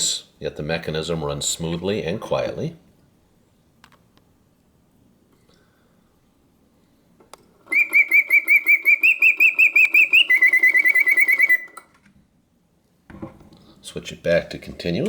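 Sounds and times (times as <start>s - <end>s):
mechanical bird whistling birdsong: 7.7s - 11.9s.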